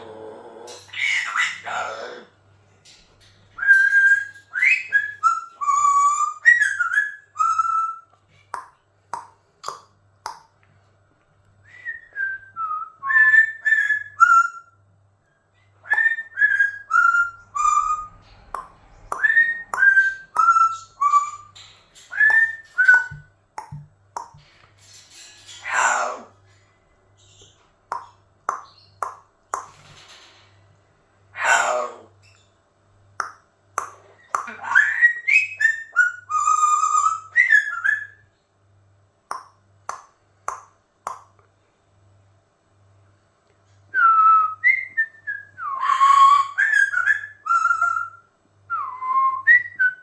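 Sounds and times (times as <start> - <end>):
parrot whistling: 3.6 - 8.0, 16.0 - 18.2, 19.1 - 23.8, 44.0 - 48.2
parrot clicks: 8.6 - 10.5, 22.2 - 24.5, 27.9 - 29.9, 39.3 - 41.3.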